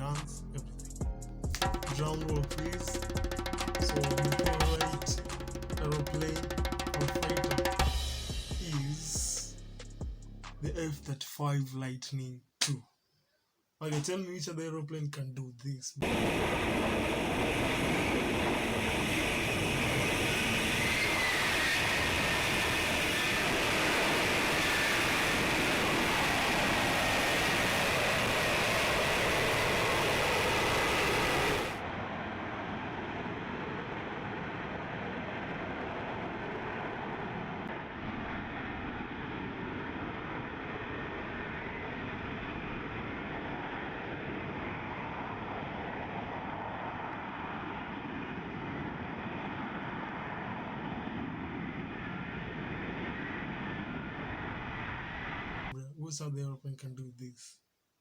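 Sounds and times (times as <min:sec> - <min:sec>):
faint engine whine: 0:00.0 - 0:10.9, 0:16.0 - 0:55.8
jet engine roaring: 0:16.0 - 0:55.7.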